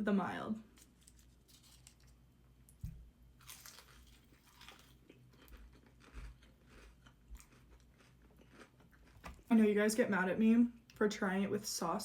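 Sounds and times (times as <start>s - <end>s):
crunching and chewing fried chicken: 0.8s - 9.5s.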